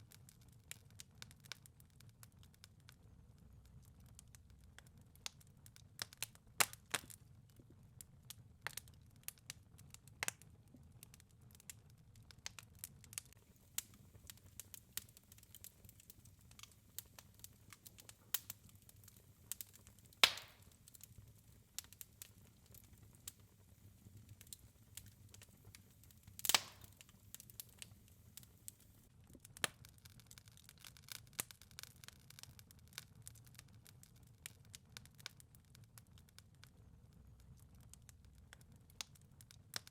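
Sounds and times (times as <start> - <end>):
wood fire crackling: 0.0 - 39.9
low rumble of flame: 0.1 - 39.9
loud pops from fire: 12.5 - 28.8.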